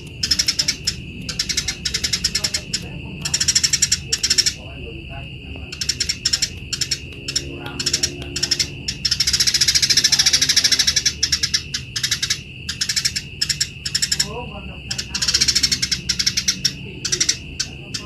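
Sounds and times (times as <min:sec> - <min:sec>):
sparrows chattering: 0:00.0 - 0:18.0
steady high whine: 0:00.0 - 0:18.0.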